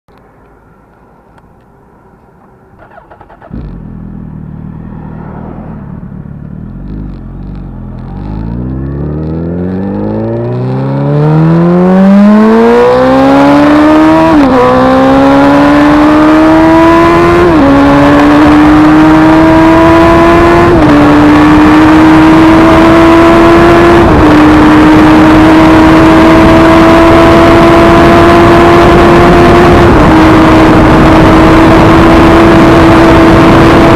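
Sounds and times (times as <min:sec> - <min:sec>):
motorcycle engine accelerating: 0:02.8 - 0:33.9
rushing wind noise: 0:19.6 - 0:33.9.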